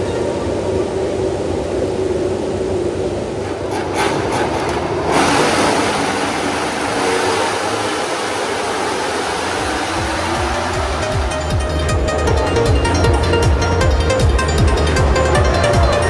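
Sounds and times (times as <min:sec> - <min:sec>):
racing motorcycles passing: 0:03.3 - 0:16.0.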